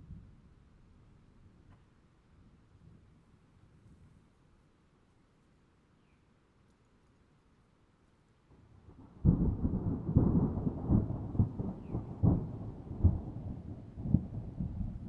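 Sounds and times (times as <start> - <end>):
thunder clap and rumble: 8.9 - 15.0
sharp thunder cracks: 9.2 - 15.0.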